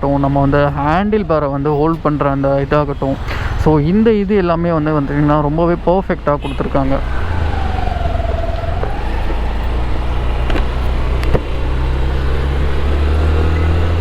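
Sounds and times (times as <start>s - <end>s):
scooter engine droning: 6.4s - 14.0s.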